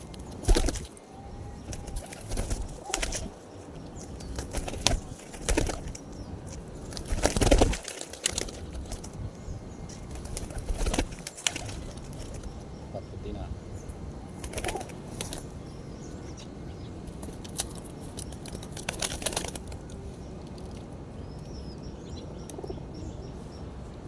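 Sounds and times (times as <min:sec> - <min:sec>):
pigeons flapping wings: 0:00.0 - 0:01.0, 0:01.6 - 0:09.2, 0:09.9 - 0:12.6, 0:14.4 - 0:15.6, 0:17.1 - 0:20.0
pigeons cooing: 0:00.0 - 0:20.1.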